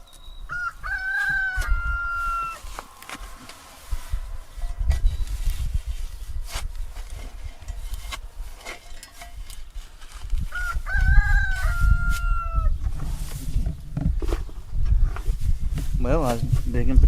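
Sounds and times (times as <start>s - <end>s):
wind rumble on microphone: 0.3s - 17.0s
rooster crowing: 0.5s - 2.7s, 10.5s - 12.8s.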